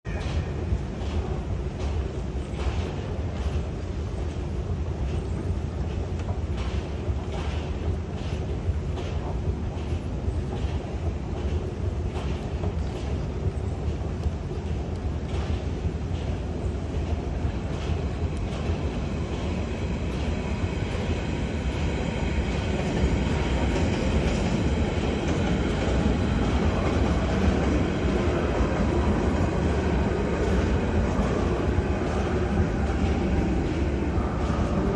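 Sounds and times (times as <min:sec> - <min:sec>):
train running on rails: 0:00.1 - 0:34.9.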